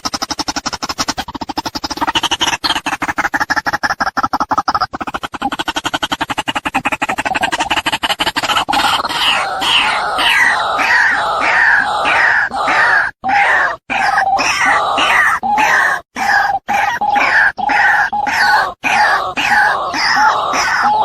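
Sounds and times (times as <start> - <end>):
waterhen calling harshly: 8.8 - 21.0.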